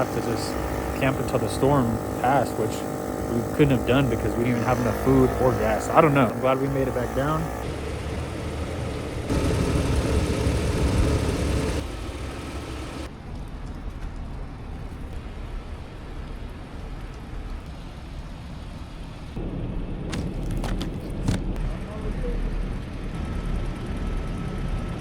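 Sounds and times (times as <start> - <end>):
car engine and road noise: 0.0 - 14.4, 16.4 - 21.6.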